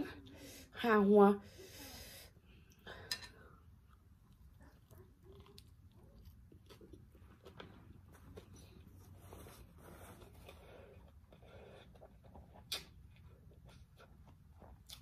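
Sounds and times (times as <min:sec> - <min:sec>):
person biting and chewing: 0:12.0 - 0:15.0
wet mouth clicks: 0:12.6 - 0:13.0.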